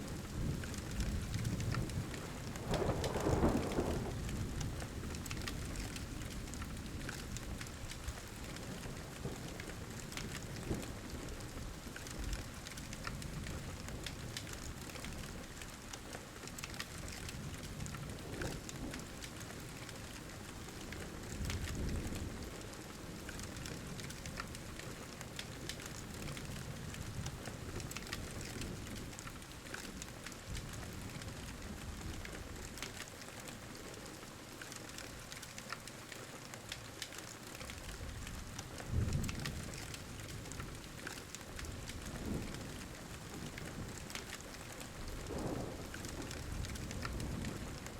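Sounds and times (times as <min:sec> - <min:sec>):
fire crackling and popping: 0:00.0 - 0:47.9
steady rain: 0:00.0 - 0:47.9
low thunder rumbles: 0:00.1 - 0:07.7, 0:38.8 - 0:40.9, 0:45.0 - 0:47.9.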